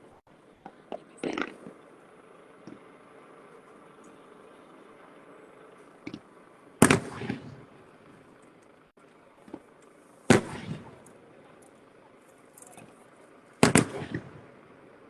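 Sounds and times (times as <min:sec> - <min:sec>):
faint crackling: 0:00.0 - 0:15.0
firework bangs with echo: 0:06.8 - 0:07.7, 0:10.3 - 0:11.1, 0:13.6 - 0:14.5.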